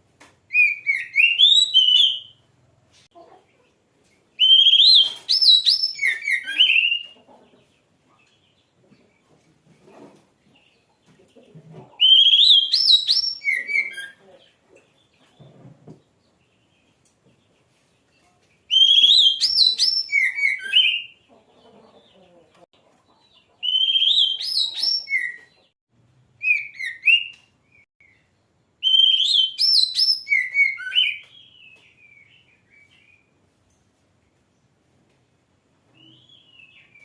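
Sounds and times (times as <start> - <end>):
magpie-robin singing whistled phrases: 0.5 - 2.4, 4.4 - 7.1, 12.0 - 14.2, 18.7 - 21.2, 23.6 - 25.7, 26.4 - 28.2, 28.8 - 33.3.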